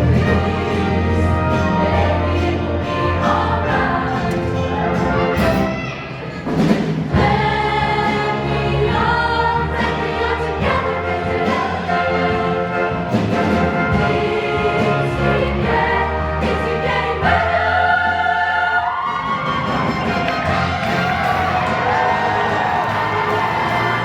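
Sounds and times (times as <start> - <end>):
show choir singing with band: 0.0 - 5.7, 6.6 - 24.0.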